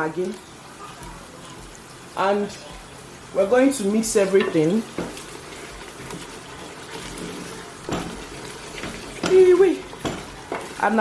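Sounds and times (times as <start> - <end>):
low sizzle: 0.0 - 11.0
spoon stirring soup: 4.2 - 10.8
spoon scraping and knocking pot: 7.0 - 10.8.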